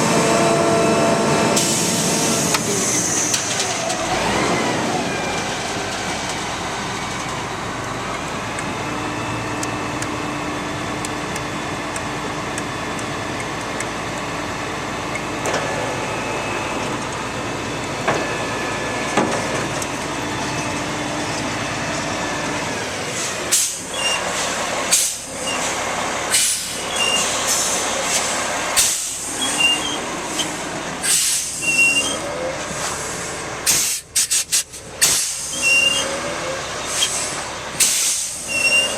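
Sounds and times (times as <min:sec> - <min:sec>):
diesel engine running: 0:00.0 - 0:38.9
air hiss bursts: 0:30.3 - 0:31.6, 0:33.7 - 0:35.6, 0:36.9 - 0:38.5.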